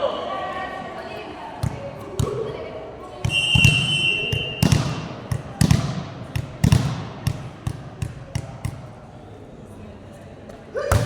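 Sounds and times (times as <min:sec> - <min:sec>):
volleyball thuds in a hall: 0:00.0 - 0:11.0
referee's whistle blast: 0:03.3 - 0:04.8.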